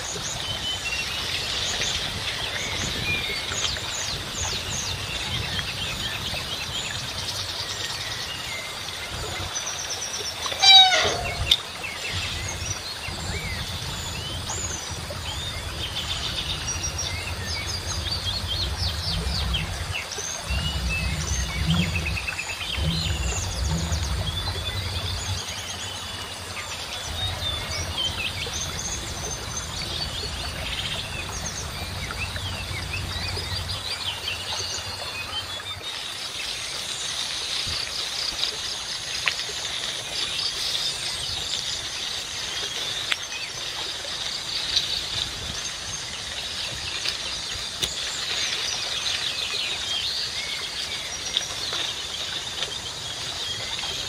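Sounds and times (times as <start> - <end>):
birds chirping and calling: 10.5 - 12.7, 15.4 - 25.8
bird call falling in pitch: 10.6 - 11.6
low rumble: 12.2 - 35.2.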